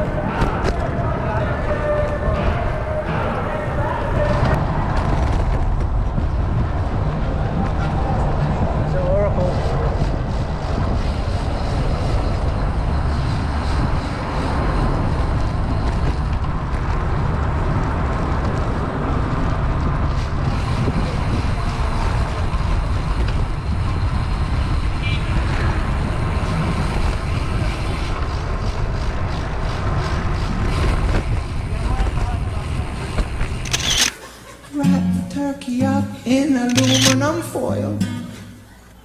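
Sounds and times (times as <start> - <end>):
wind rushing over microphone: 0.0 - 34.1
road and traffic noise: 0.0 - 37.6.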